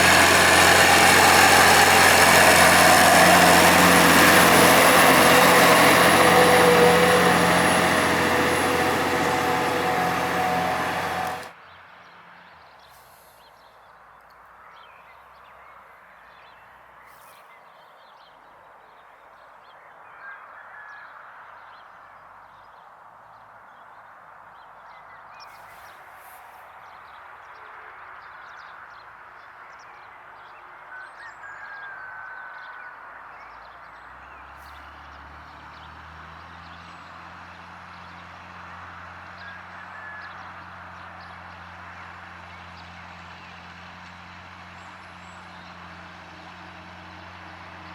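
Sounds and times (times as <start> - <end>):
birds calling: 0.0 - 11.5
tractor engine: 0.0 - 11.5.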